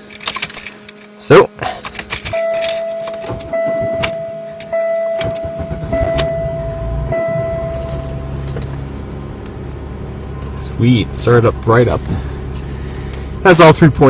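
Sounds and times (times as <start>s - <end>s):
car engine idling: 1.5s - 14.0s
starter motor cranking: 1.8s - 9.6s
dashboard chime: 2.4s - 9.0s.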